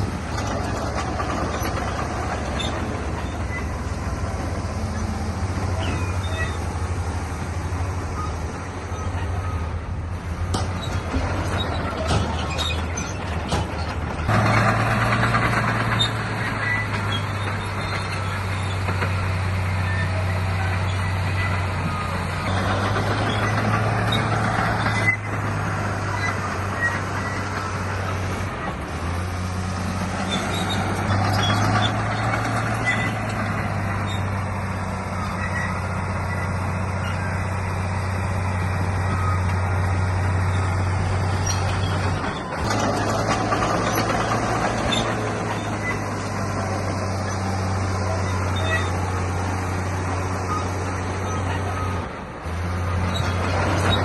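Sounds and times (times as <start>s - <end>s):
rattling clatter: 0.0s - 4.7s, 10.4s - 20.0s, 39.0s - 49.1s
heavy machinery diesel engine: 0.0s - 54.0s.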